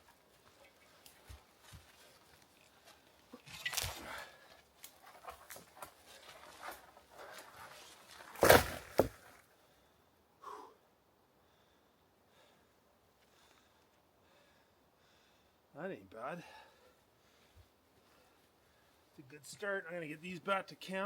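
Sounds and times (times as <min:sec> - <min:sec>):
dead wood rustling and crackling: 0:00.0 - 0:09.4.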